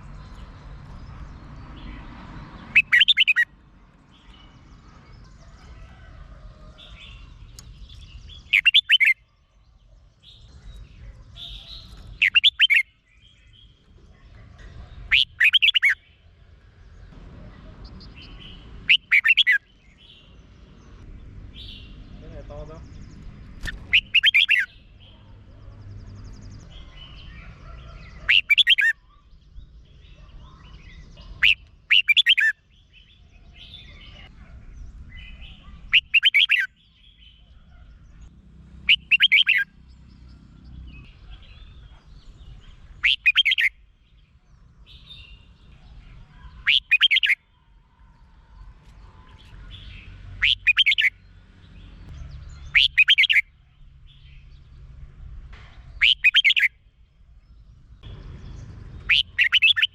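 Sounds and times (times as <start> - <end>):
bird warbling: 2.7 - 3.4, 8.5 - 9.2, 11.4 - 12.9, 15.1 - 16.1, 18.8 - 19.6, 23.6 - 24.8, 27.7 - 29.0, 31.3 - 32.6, 35.9 - 36.7, 38.9 - 39.7, 42.9 - 43.7, 46.4 - 47.4, 49.3 - 51.1, 52.7 - 53.4, 56.0 - 56.7, 59.0 - 59.9.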